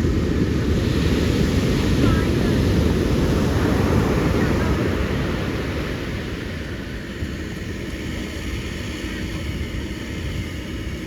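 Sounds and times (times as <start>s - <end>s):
ocean surf rushing: 0.0s - 6.9s.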